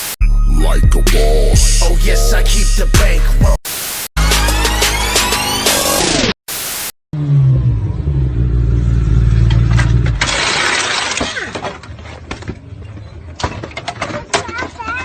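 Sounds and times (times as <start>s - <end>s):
static burst: 3.0s - 4.1s, 5.5s - 7.0s
vehicle engine humming: 7.5s - 10.2s.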